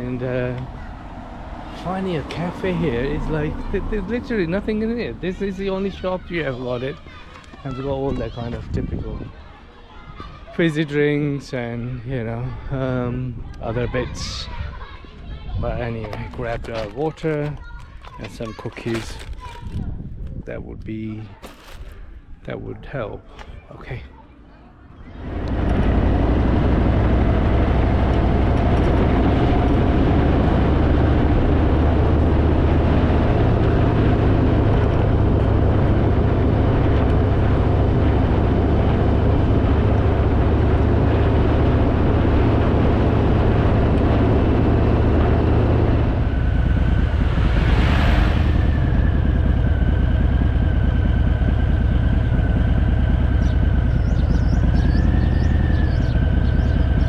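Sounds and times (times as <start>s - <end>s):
wind and road noise: 0.0s - 24.2s, 24.9s - 57.0s
steady high whine: 25.1s - 57.0s
motorcycle engine running: 25.2s - 57.0s.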